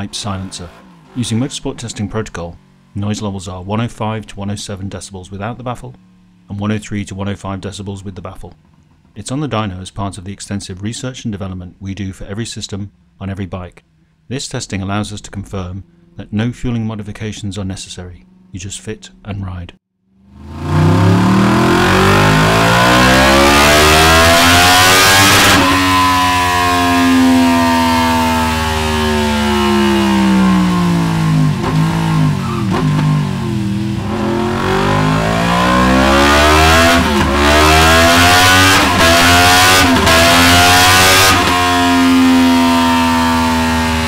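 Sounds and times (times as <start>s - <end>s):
motorcycle engine revving: 20.2s - 44.0s.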